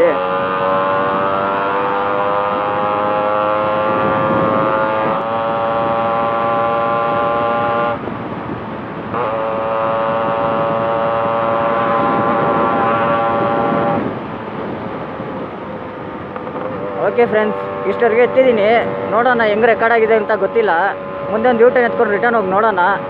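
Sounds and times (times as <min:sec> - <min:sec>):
motorcycle engine running hard: 0:00.0 - 0:23.0
rushing wind noise: 0:00.0 - 0:23.0.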